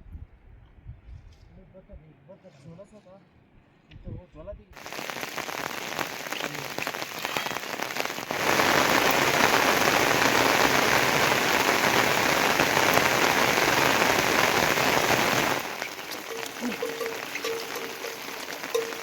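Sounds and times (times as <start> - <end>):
rain falling: 4.8 - 19.0.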